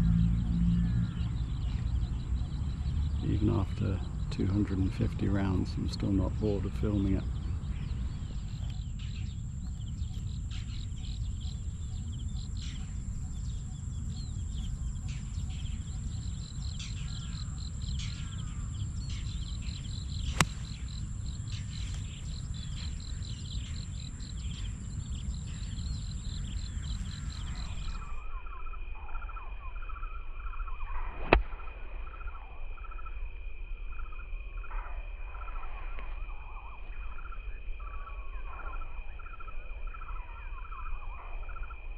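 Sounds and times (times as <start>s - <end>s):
wind rumble on microphone: 0.0s - 28.2s
birds chirping: 0.0s - 29.4s
golf club striking ball: 20.2s - 21.9s, 31.2s - 31.7s.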